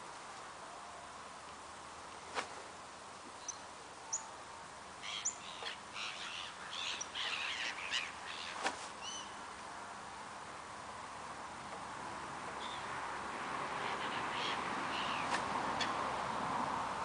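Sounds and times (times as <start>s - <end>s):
harsh chattering bird calls: 5.0s - 9.3s
bird chirps: 5.0s - 9.4s.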